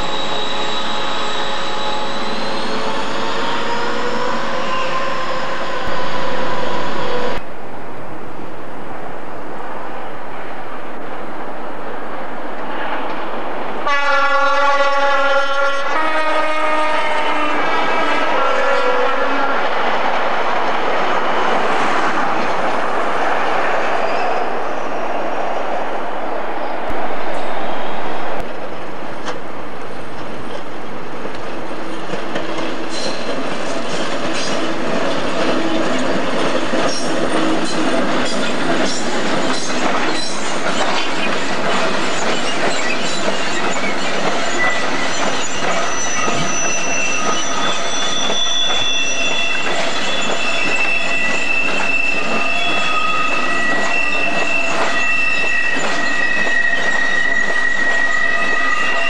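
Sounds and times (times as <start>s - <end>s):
high wheel squeals: 0.0s - 7.4s, 42.0s - 59.0s
train wheels clattering over rail joints: 30.1s - 58.0s.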